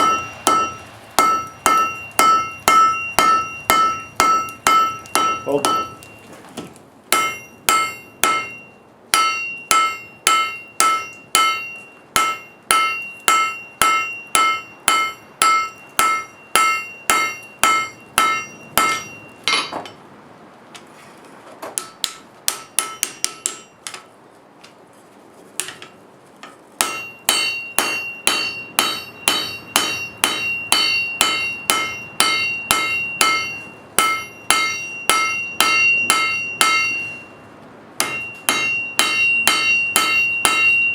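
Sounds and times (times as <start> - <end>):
hammer striking steel on anvil: 0.0 - 6.2, 7.1 - 20.0, 21.8 - 24.0, 26.8 - 37.4, 38.0 - 40.9
anvil ringing: 0.0 - 6.3, 7.1 - 20.0, 21.8 - 23.8, 26.8 - 37.4, 38.0 - 40.9.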